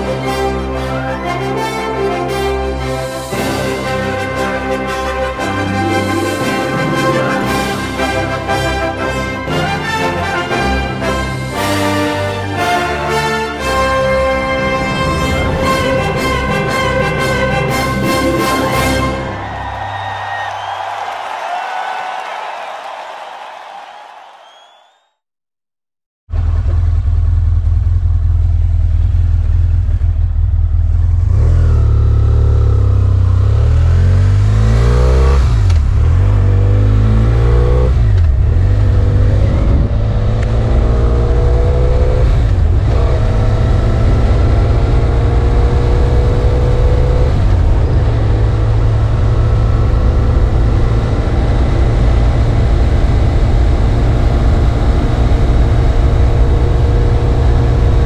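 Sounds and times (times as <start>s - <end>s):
motorcycle engine accelerating: 26.3s - 58.0s.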